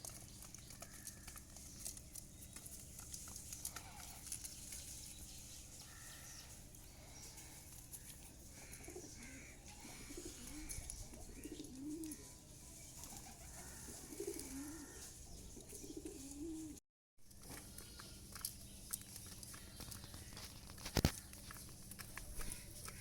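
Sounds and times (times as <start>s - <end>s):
pigeons cooing: 8.5s - 12.4s, 13.0s - 16.8s.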